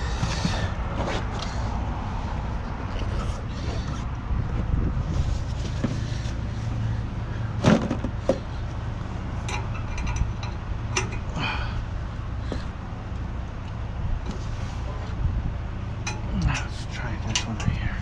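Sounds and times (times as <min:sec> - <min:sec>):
truck engine idling: 0:00.0 - 0:18.0
metallic clanks and knocks: 0:07.6 - 0:08.5, 0:09.4 - 0:11.3, 0:16.0 - 0:17.8.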